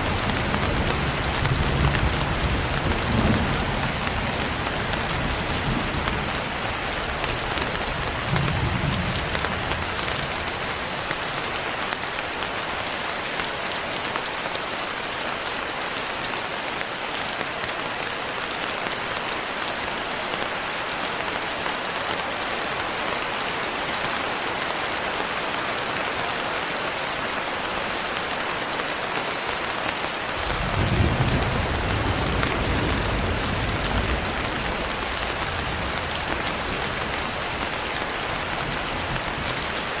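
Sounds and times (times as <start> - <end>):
thunder rumbles: 0.0 - 11.0, 30.4 - 39.8
heavy rain falling: 0.0 - 40.0.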